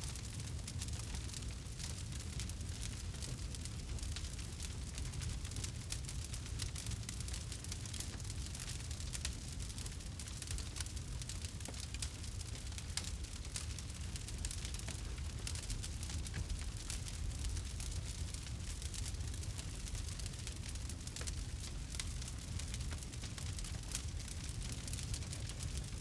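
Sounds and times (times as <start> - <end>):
campfire crackling: 0.1 - 26.0.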